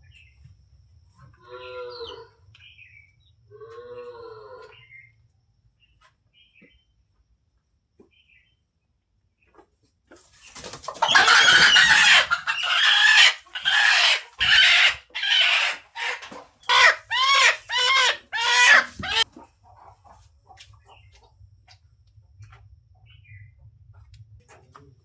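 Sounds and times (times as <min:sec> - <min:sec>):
chicken calling loudly: 0:10.9 - 0:19.3.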